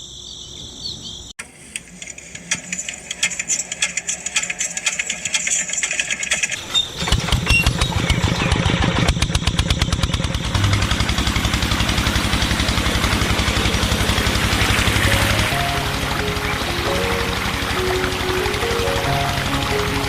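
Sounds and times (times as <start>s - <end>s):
small petrol engine running: 1.4s - 20.0s
light rapid rattle: 1.5s - 18.2s.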